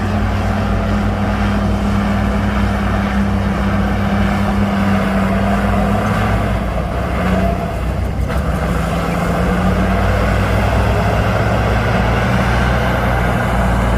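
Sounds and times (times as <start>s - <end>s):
heavy diesel engine running: 0.0s - 13.9s.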